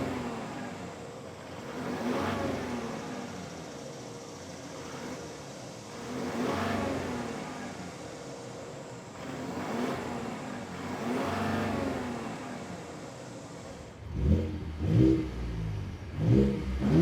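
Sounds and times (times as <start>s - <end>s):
truck engine revving: 1.6s - 3.4s, 9.2s - 12.9s, 13.8s - 17.0s.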